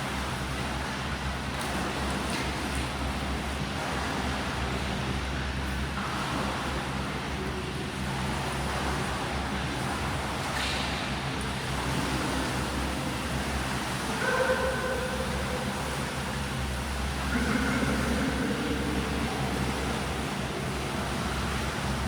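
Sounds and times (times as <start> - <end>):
swimming pool rumble: 11.2 - 22.0
low hum: 14.1 - 21.6.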